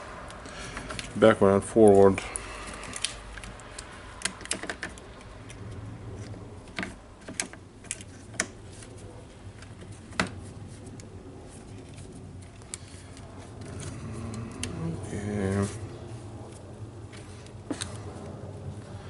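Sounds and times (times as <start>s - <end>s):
plastic parts clicking: 2.7s - 5.6s.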